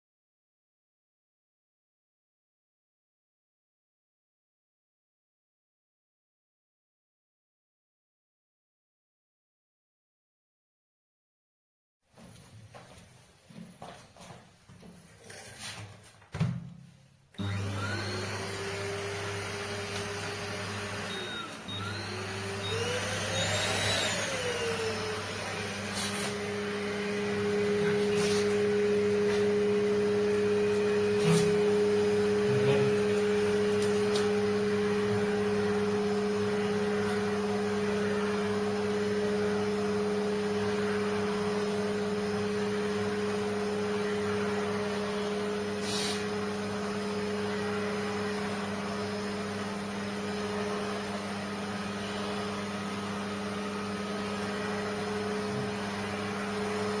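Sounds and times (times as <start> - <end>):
grooming vacuum humming: 17.4 - 57.0.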